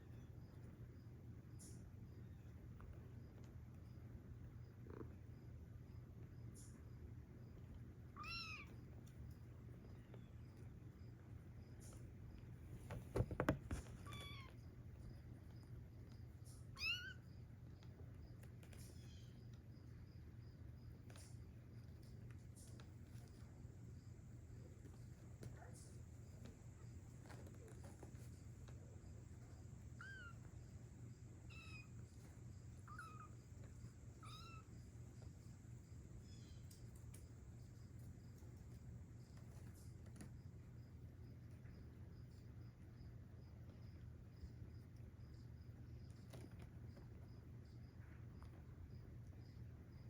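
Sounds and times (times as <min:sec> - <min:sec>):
knocks and scrapes: 0:12.7 - 0:14.1.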